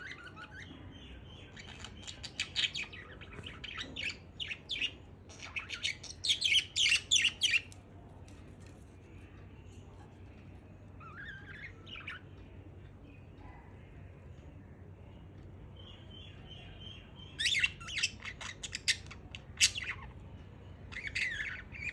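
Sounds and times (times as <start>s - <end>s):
budgerigar chirping: 0.0s - 7.7s, 17.2s - 20.2s, 20.9s - 21.9s.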